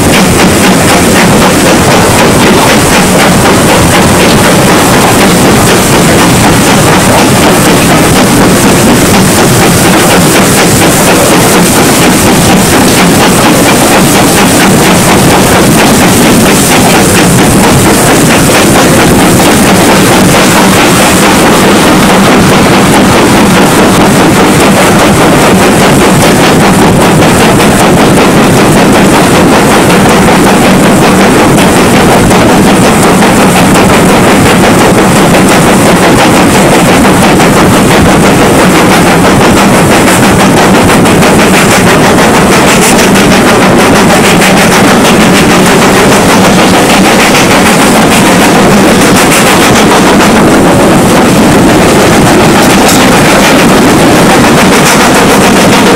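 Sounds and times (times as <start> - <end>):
steam train running: 0.0 - 55.9.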